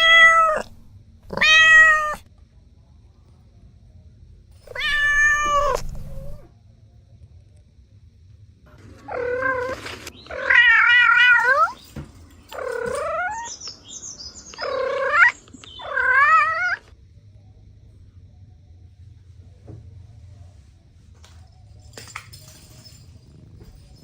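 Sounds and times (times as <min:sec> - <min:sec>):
cat meowing: 0:00.0 - 0:02.3, 0:04.7 - 0:06.5, 0:09.1 - 0:11.8, 0:14.6 - 0:16.9.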